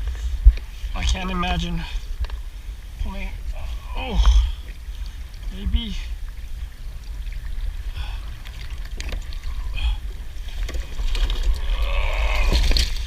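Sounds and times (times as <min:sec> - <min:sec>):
rush of water: 0:00.0 - 0:13.0
wind rumble on microphone: 0:00.0 - 0:13.0.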